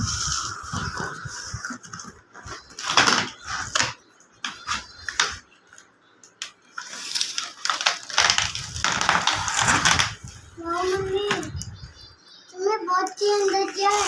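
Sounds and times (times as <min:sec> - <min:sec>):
packaging rustling: 0:06.8 - 0:10.2.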